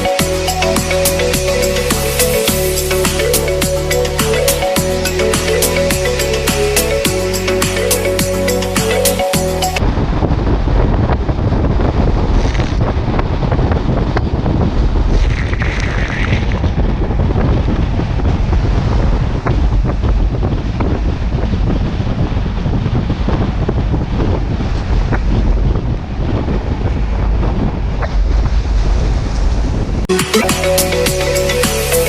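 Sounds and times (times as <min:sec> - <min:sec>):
wind buffeting microphone: 0:09.4 - 0:30.1
faint crackles: 0:12.2 - 0:13.0, 0:15.0 - 0:17.1.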